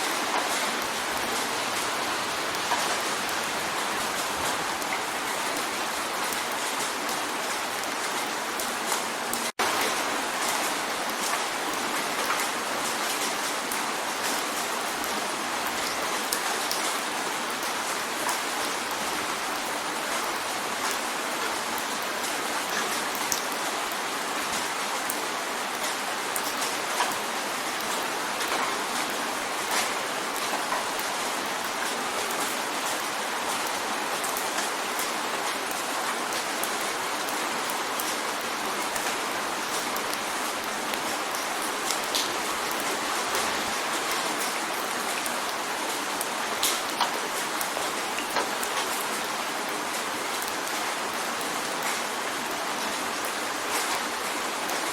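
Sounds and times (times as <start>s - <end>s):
rain on a window pane: 0.0s - 54.9s.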